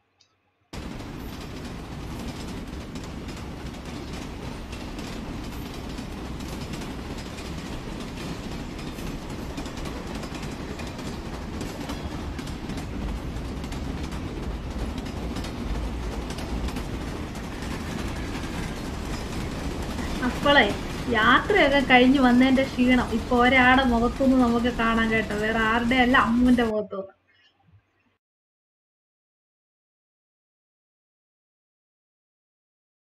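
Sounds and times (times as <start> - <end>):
wheels clattering over track: 0.8 - 26.7
train rumbling on rails: 0.8 - 26.8.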